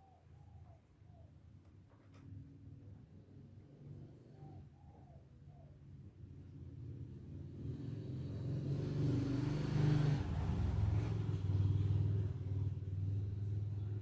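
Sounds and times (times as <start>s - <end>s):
vehicle driving past: 7.4s - 14.0s.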